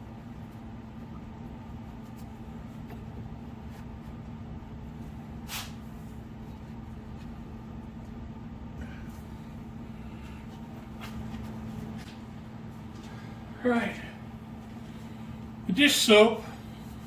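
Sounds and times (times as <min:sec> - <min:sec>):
steady low hum: 0:00.0 - 0:17.0
brief scraping hiss: 0:05.5 - 0:05.8.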